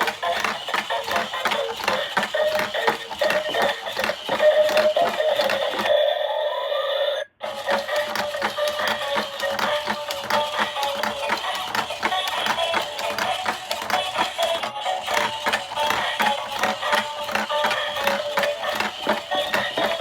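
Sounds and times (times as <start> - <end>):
rapid clicking: 0.0 - 5.9, 7.4 - 20.0
toy beeping tones: 0.1 - 11.2.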